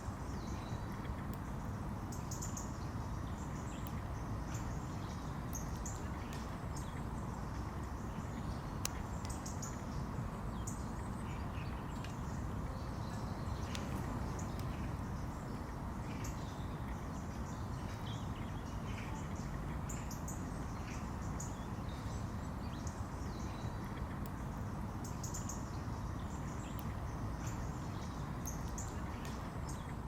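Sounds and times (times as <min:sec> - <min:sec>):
small birds chirping: 0:00.0 - 0:30.0
steady low rumble: 0:02.9 - 0:19.9.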